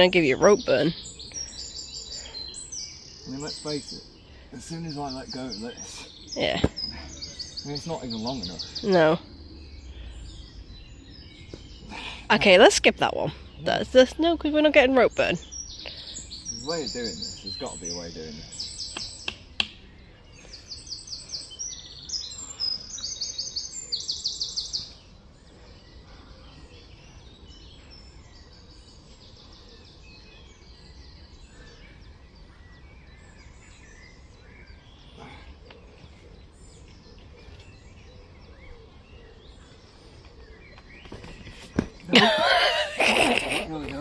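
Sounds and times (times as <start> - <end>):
low steady outdoor rumble: 0.0 - 22.6
songbird singing: 0.0 - 44.0.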